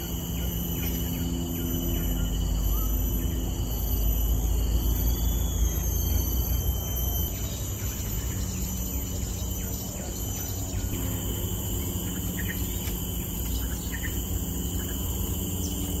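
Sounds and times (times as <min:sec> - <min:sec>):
bird chirps: 0:00.0 - 0:16.0
constant low rumble: 0:00.0 - 0:16.0
high insect trilling: 0:00.0 - 0:16.0.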